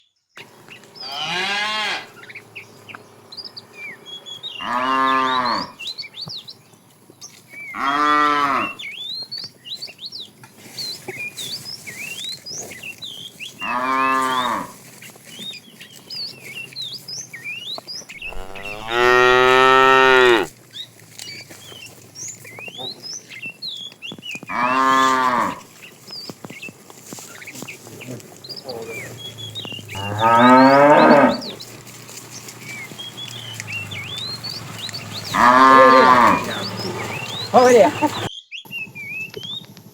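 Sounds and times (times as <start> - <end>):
cow mooing: 1.0 - 2.3, 4.2 - 5.8, 7.8 - 8.8, 13.6 - 14.8, 18.2 - 20.5, 24.5 - 25.6, 28.6 - 31.9, 32.8 - 38.3.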